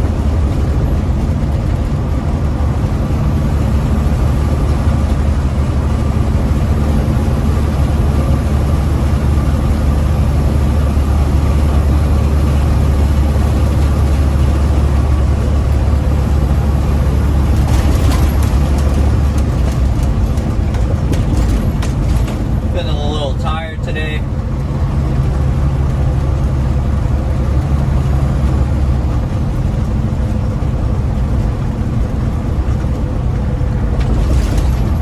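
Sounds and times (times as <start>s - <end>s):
truck diesel engine running: 0.0s - 35.0s
light rattles: 17.0s - 22.8s, 32.2s - 35.0s.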